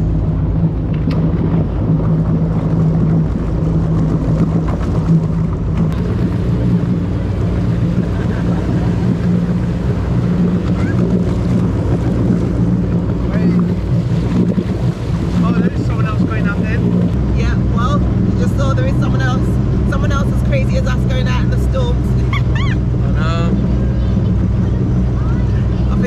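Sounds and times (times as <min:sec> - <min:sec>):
car engine droning: 0:00.0 - 0:26.0
wind and water noise: 0:00.0 - 0:26.0.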